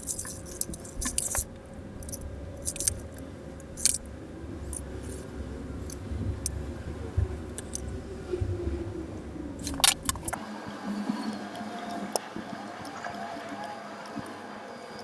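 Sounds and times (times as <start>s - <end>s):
low handling rumble: 0.0s - 10.4s
plastic puzzle cube clicking: 9.6s - 10.4s.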